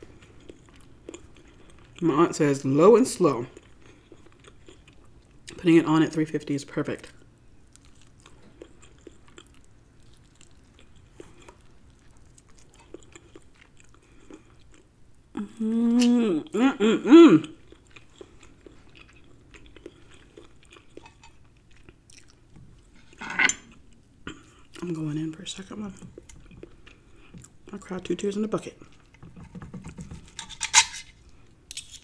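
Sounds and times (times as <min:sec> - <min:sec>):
person chewing: 0:00.0 - 0:02.0, 0:03.4 - 0:05.6, 0:07.2 - 0:24.9, 0:25.9 - 0:27.7
person humming with enjoyment: 0:15.4 - 0:17.6.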